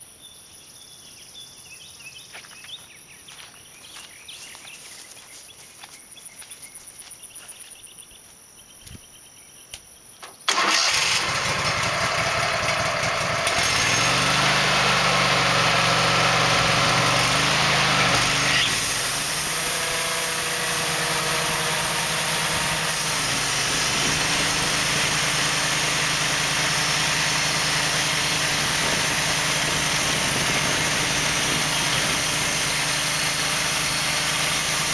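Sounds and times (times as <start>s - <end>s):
sawmill engine running: 10.5s - 34.9s.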